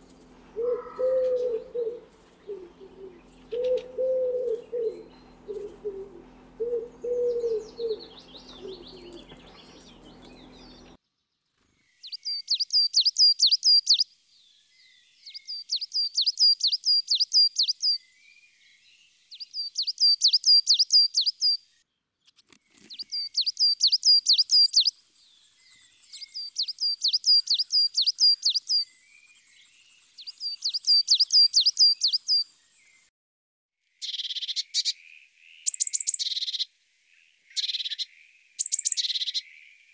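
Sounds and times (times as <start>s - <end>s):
coal tit singing: 0.0s - 11.0s, 12.0s - 14.0s, 15.2s - 18.0s, 19.3s - 21.6s, 22.9s - 32.4s
wood pigeon cooing: 0.0s - 11.0s.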